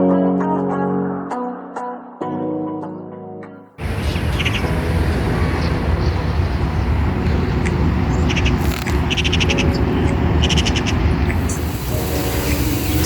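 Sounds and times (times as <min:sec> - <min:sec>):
birds chirping: 0:03.8 - 0:13.0
steady low rumble: 0:03.8 - 0:13.0.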